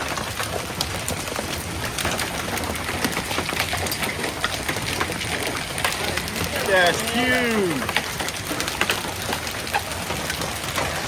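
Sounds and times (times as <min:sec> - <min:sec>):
hailstones pelting hard surfaces: 0:00.0 - 0:11.0.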